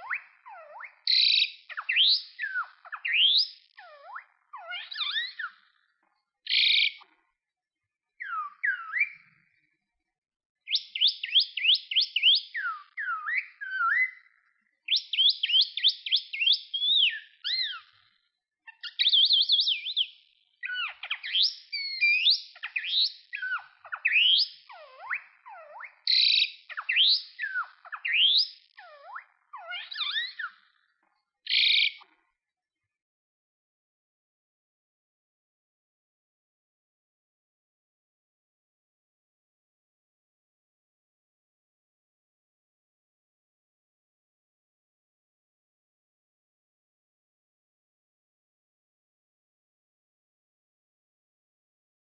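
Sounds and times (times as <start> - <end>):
bird singing whistled notes: 0.0 - 5.8, 6.5 - 7.1, 8.2 - 9.4, 10.7 - 18.0, 18.7 - 30.8, 31.5 - 32.0.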